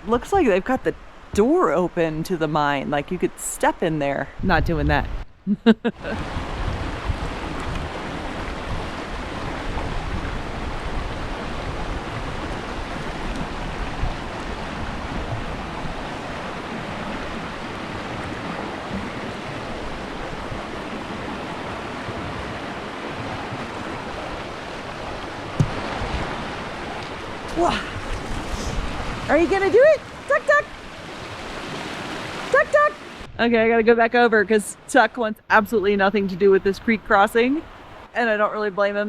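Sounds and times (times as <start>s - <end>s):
wind rumble on microphone: 4.2s - 34.8s
creek water rushing: 6.0s - 33.3s, 36.4s - 38.2s.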